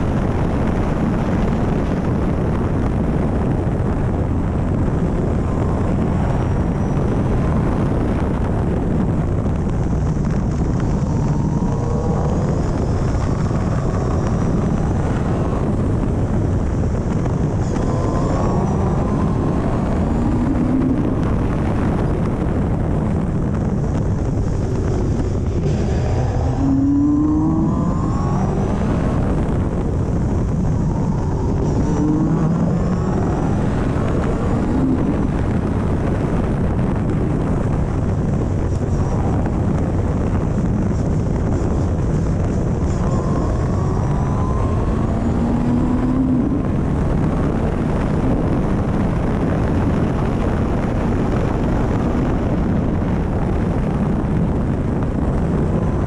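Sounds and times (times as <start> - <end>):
car engine revving: 0.0 - 56.0
wind and road noise: 0.0 - 56.0.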